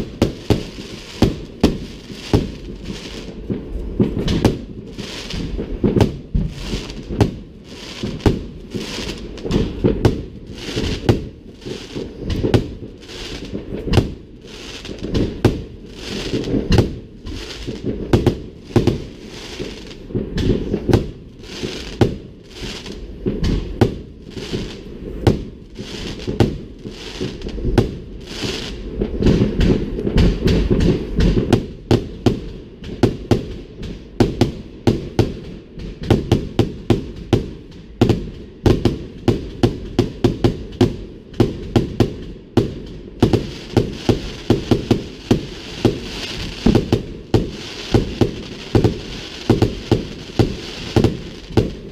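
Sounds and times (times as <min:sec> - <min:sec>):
firework shell bursts: 0:38.8 - 0:51.9.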